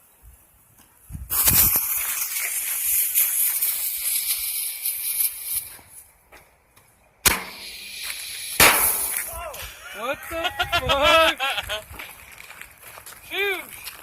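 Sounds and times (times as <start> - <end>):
firework hissing and spraying: 1.0 - 6.2, 7.2 - 9.8
firework bang: 7.2 - 9.4.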